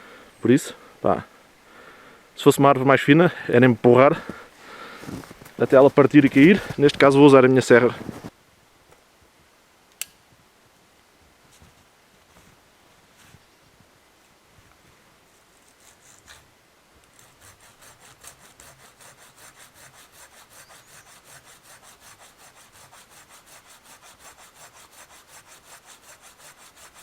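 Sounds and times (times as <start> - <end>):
hand saw cutting wood: 15.6 - 16.4, 17.1 - 27.0.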